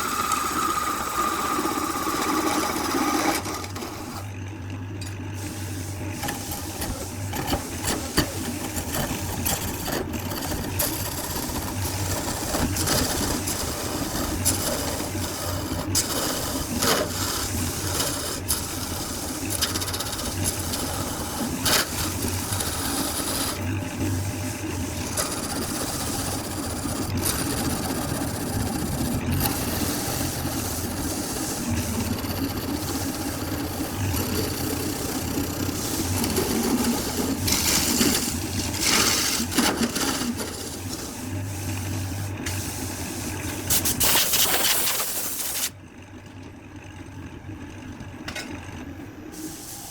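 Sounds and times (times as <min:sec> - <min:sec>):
wood lathe humming: 0:00.0 - 0:04.3, 0:06.0 - 0:42.4
tool rasping on spinning wood: 0:06.2 - 0:23.7, 0:24.5 - 0:41.5.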